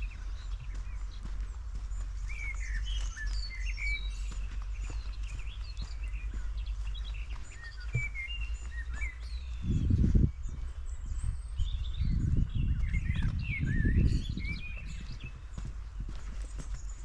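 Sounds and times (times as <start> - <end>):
small songbirds chirping: 0.0 - 17.0
steady low rumble: 0.0 - 17.0
dull low thump: 4.4 - 9.1.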